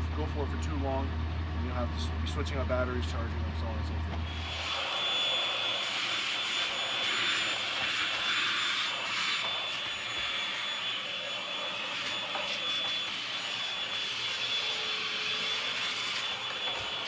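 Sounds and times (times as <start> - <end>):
vacuum cleaner running: 3.4 - 17.0.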